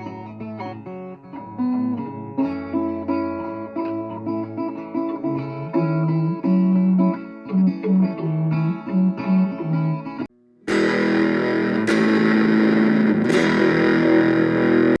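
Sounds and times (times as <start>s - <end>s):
picked guitar notes: 0.0s - 15.0s
distorted guitar passage: 10.7s - 15.0s.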